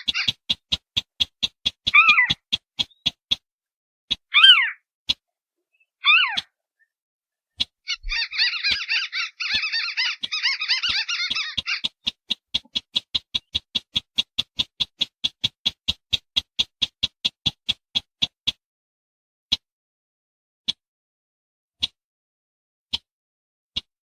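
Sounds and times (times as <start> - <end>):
recorded crake calls: 0.0 - 0.4, 1.8 - 3.0, 4.1 - 4.8, 6.0 - 6.9, 7.9 - 13.6.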